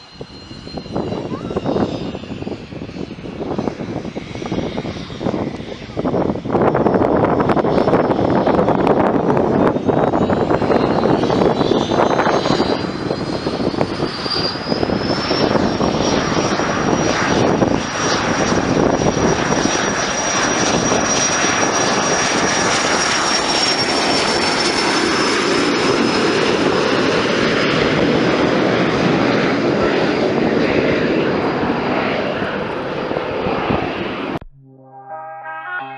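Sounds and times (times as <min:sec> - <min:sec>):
wind buffeting microphone: 0:00.0 - 0:34.4
airplane engine with whine: 0:00.0 - 0:35.9.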